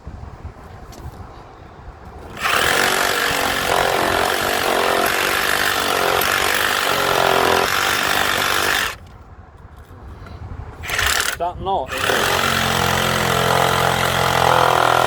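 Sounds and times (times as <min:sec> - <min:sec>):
power tool cutting wood: 0:02.3 - 0:09.0, 0:10.8 - 0:15.0.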